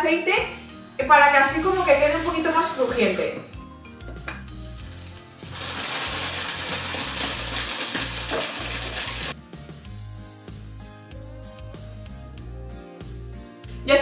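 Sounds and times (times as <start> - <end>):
background music with bass line: 0.4 - 14.0
flatbread sizzling in a pan: 4.5 - 9.4.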